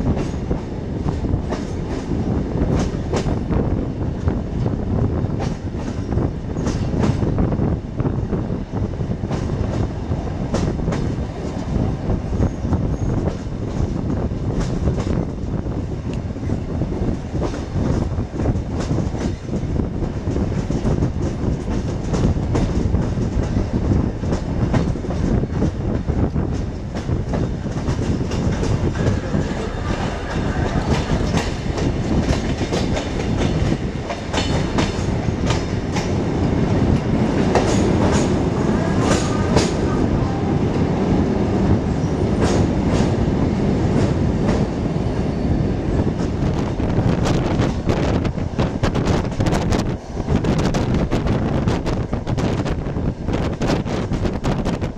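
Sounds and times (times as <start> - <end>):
train rumbling on rails: 0.0 - 54.9
wheels clacking over rail joints: 17.1 - 40.8.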